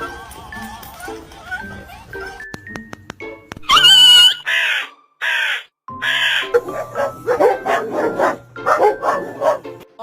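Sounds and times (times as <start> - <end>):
music: 0.0 - 5.2, 5.9 - 10.0
harsh raspy animal calls: 3.7 - 6.8.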